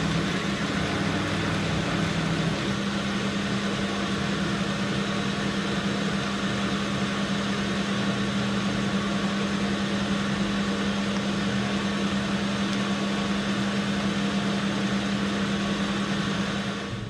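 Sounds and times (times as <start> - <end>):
metal lathe humming: 0.0 - 17.0.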